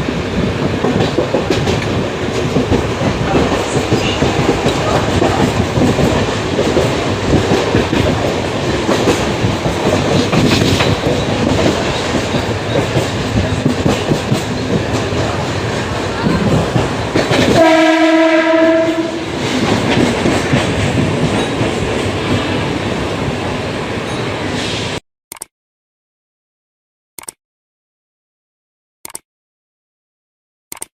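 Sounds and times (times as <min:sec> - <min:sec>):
train rumbling over rails: 0:00.0 - 0:25.0
train horn: 0:17.5 - 0:19.4.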